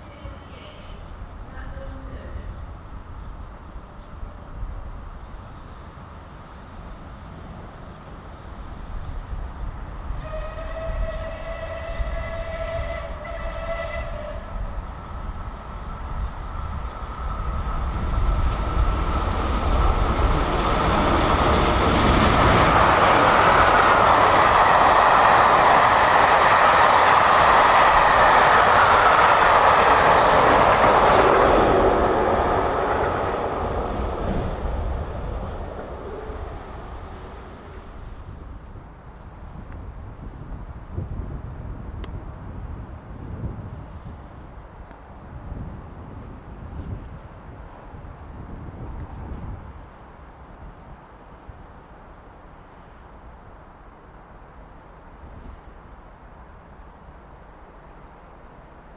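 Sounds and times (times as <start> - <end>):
train passing close by: 0.0 - 40.9
steam locomotive whistle: 10.1 - 14.8, 21.7 - 38.4.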